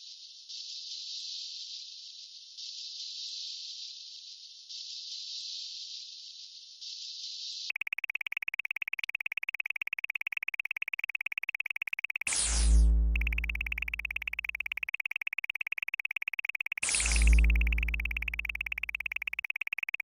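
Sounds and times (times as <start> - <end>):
pulsing high electronic chirp: 7.7 - 20.0.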